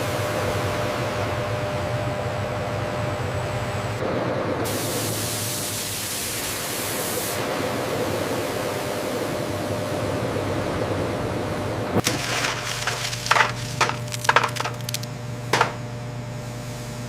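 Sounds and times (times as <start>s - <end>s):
machinery low hum: 10.5s - 17.0s.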